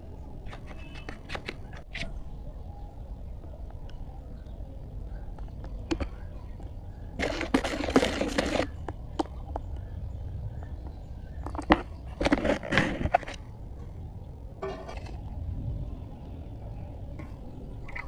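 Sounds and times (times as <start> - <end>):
steady low hum: 1.6 - 18.0
crunching and crackling: 5.3 - 9.7, 11.4 - 13.5.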